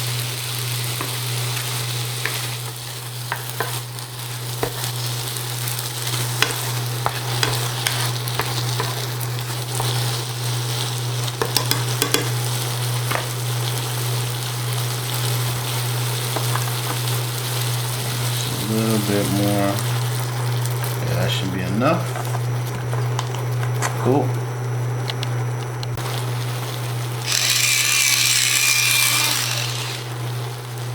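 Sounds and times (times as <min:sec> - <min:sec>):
beans and onions sizzling in a pan: 0:00.0 - 0:23.8, 0:26.0 - 0:30.9
utensil clicking against pan: 0:11.4 - 0:12.3.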